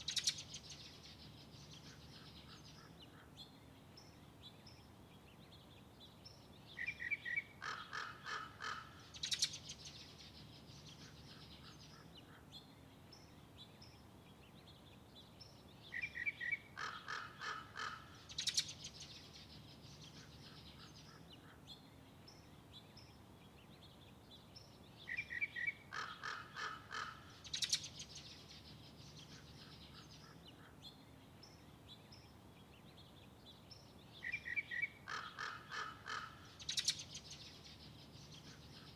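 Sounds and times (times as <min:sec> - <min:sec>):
bird calling: 0:25.1 - 0:28.0, 0:34.2 - 0:37.2.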